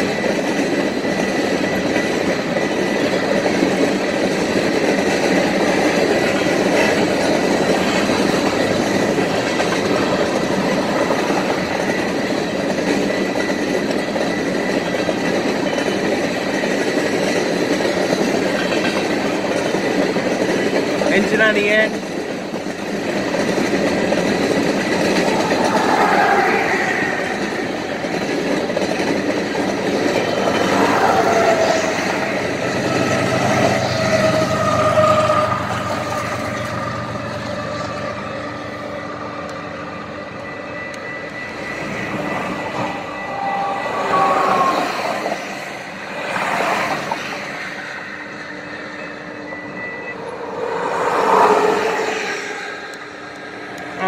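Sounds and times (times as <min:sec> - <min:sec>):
freight train rolling past: 0:00.0 - 0:54.0
locomotive engine passing: 0:00.0 - 0:54.0
road traffic passing: 0:23.4 - 0:54.0
high tones gliding down: 0:24.2 - 0:28.6, 0:38.8 - 0:46.0, 0:47.6 - 0:54.0.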